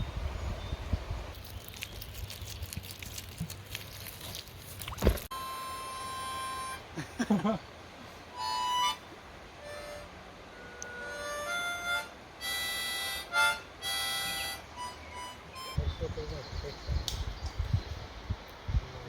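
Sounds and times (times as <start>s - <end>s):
harmonica held notes: 5.3s - 7.0s, 8.3s - 15.8s.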